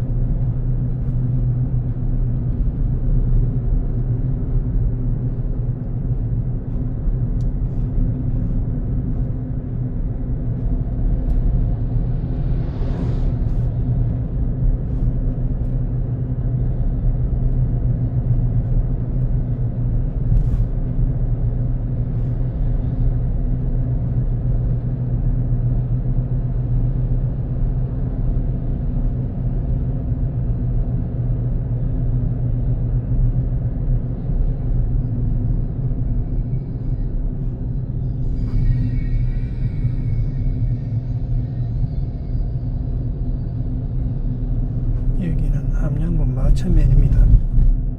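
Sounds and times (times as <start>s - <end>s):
car engine and road noise: 0.0s - 47.9s
faint high ringing tone: 38.2s - 42.5s.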